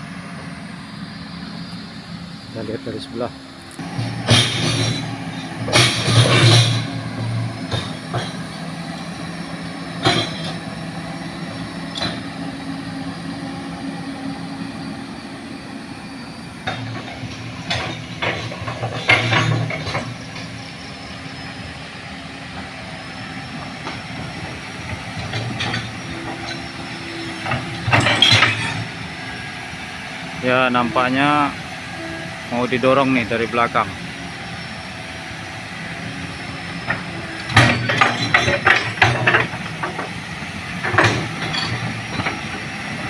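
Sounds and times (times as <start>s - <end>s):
diesel engine drone: 0.0s - 43.0s
metallic clanks: 3.8s - 10.8s, 16.6s - 20.7s, 23.6s - 29.0s, 36.8s - 42.6s.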